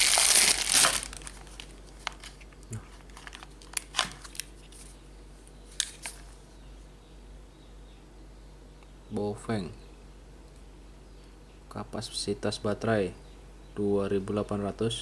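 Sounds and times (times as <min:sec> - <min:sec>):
plastic packaging crinkling and tearing: 0:00.0 - 0:04.8.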